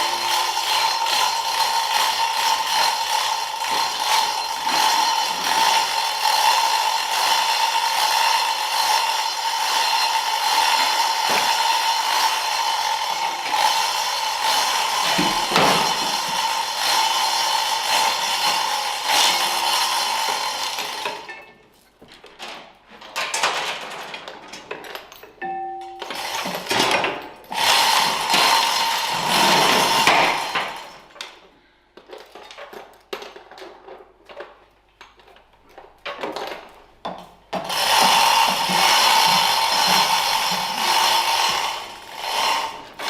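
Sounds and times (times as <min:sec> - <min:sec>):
power tool running: 0:00.0 - 0:21.3, 0:27.5 - 0:31.0, 0:37.6 - 0:43.0.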